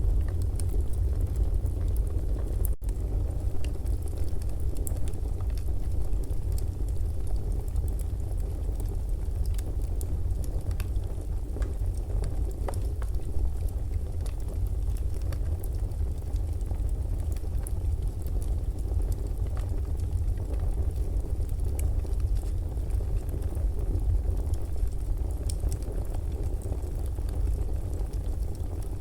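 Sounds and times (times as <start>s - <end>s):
low rumble: 0.0s - 3.5s
fire crackling and popping: 0.0s - 29.0s.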